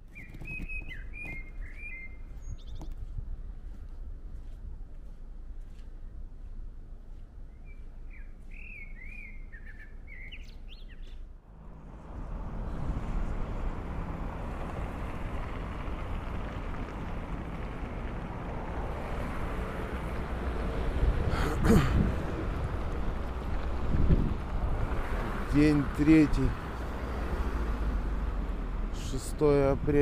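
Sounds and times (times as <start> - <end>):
small bird chirping: 0.0 - 3.1, 7.5 - 11.3
outdoor rushing noise: 11.4 - 30.0.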